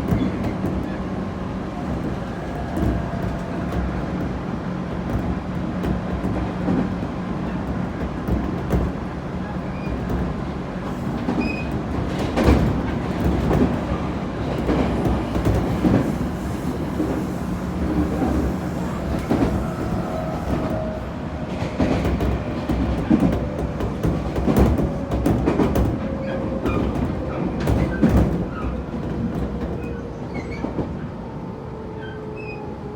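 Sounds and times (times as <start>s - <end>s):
wheels clacking over rail joints: 0.0s - 31.0s
train motor low hum: 13.8s - 27.7s.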